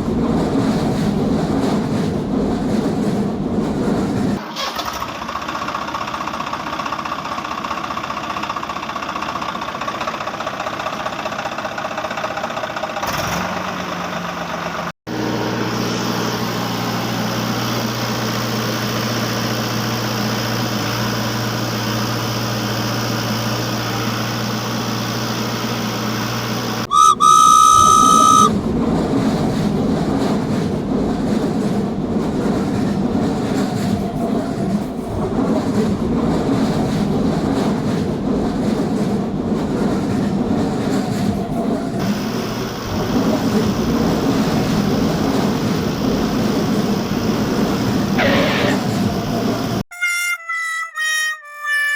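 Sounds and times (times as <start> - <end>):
passing train rumble: 0.0 - 4.5, 14.0 - 49.8
cartoon engines running: 26.9 - 28.5
train whistle blast: 26.9 - 28.5.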